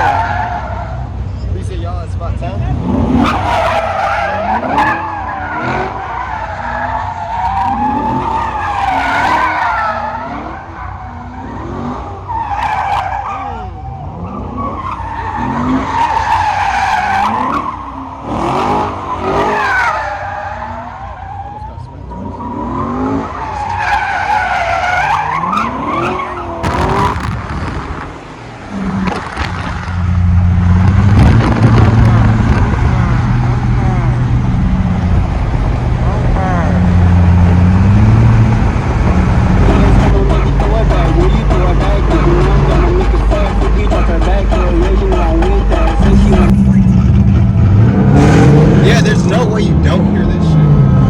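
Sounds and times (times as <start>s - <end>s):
tires squealing: 0.0s - 1.8s, 2.4s - 51.0s
car engine revving: 0.0s - 51.0s
tyres squealing: 3.1s - 11.6s, 39.1s - 46.6s.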